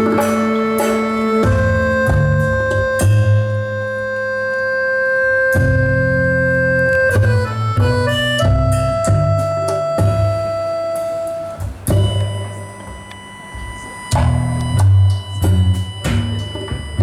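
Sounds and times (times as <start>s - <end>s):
percussion hits: 0.0s - 4.1s, 5.5s - 17.0s
accordion chords: 0.0s - 17.0s
double bass notes: 0.0s - 17.0s.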